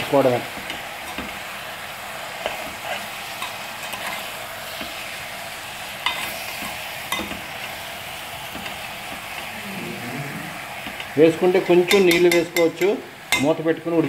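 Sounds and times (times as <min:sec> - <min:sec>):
chicken sizzling in oil: 0:00.0 - 0:14.0
metal spoon clinking on pot: 0:11.9 - 0:13.6.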